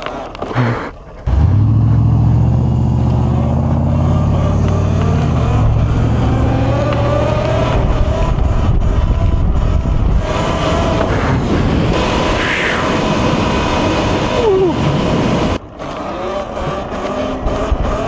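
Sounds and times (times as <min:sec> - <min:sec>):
vehicle engine running: 0:01.1 - 0:12.4
rising whine: 0:01.3 - 0:15.6.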